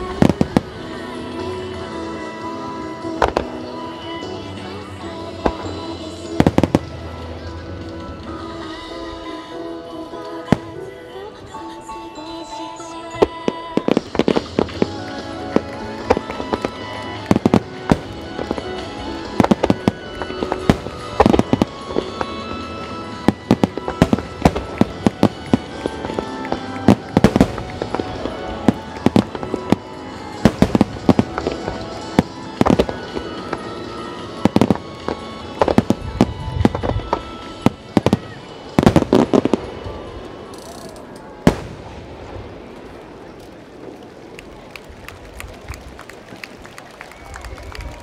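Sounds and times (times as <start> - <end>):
fireworks bursting with bangs: 0.0 - 9.3, 10.3 - 10.9, 13.2 - 44.2
fireworks crackle: 0.0 - 9.4, 12.9 - 48.0
music: 0.0 - 41.8.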